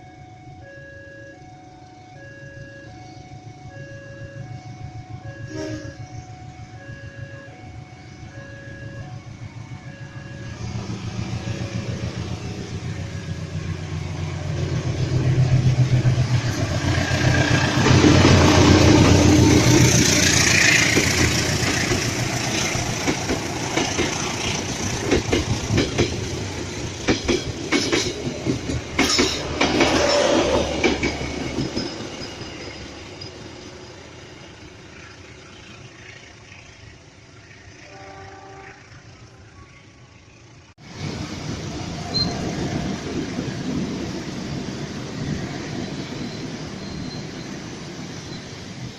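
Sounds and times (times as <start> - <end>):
locomotive engine rumble: 1.3 - 48.9
train wheels clicking on rail joints: 11.2 - 37.0.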